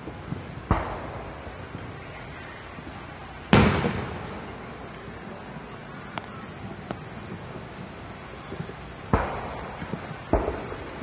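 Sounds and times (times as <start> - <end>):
firework shell booming: 0.0 - 2.2, 3.5 - 5.2, 9.0 - 11.0
sharp crack: 0.6 - 1.6, 3.5 - 5.0, 9.1 - 11.0.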